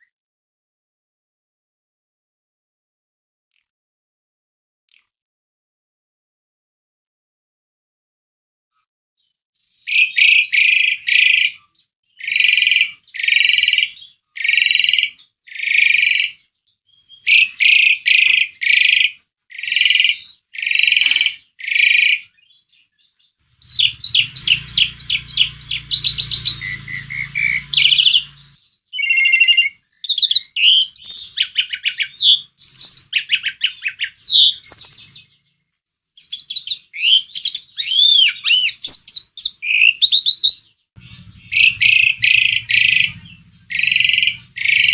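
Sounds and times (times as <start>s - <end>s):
starling singing: 23.5s - 29.2s, 41.0s - 44.9s.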